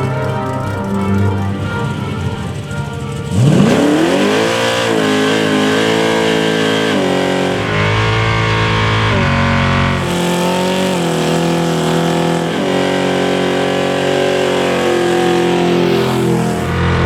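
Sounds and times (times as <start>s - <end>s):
background music: 0.0s - 16.8s
vehicle engine revving: 0.0s - 17.0s.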